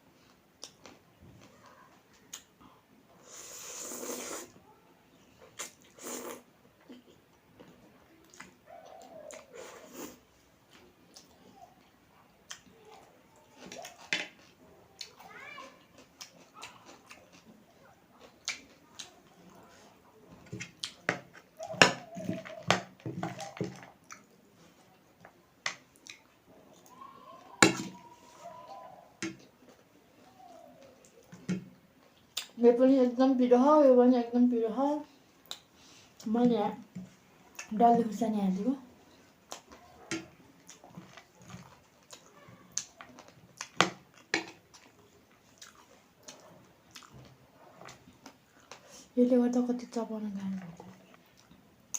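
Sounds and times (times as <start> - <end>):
person chewing with mouth smacks: 5.4 - 19.8, 20.4 - 24.8, 25.7 - 27.1, 29.4 - 32.6, 35.4 - 36.3, 39.3 - 40.0, 40.6 - 49.0
crunching and chewing snack: 40.6 - 49.0.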